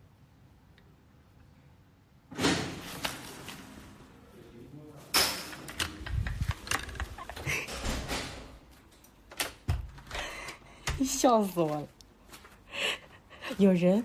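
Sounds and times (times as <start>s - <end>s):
door banging: 5.2s - 8.6s.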